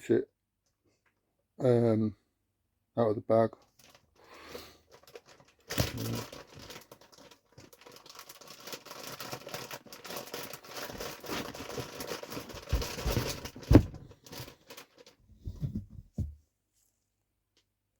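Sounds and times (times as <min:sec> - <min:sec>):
plastic bag crinkling: 0:03.7 - 0:15.2.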